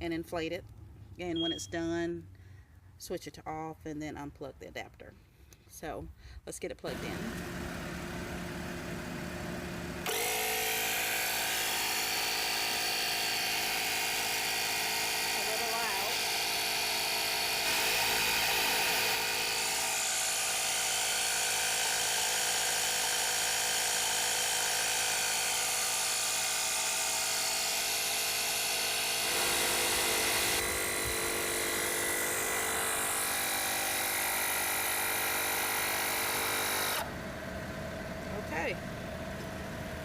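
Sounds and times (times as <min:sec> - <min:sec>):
air compressor motor buzzing: 0:06.9 - 0:37.2.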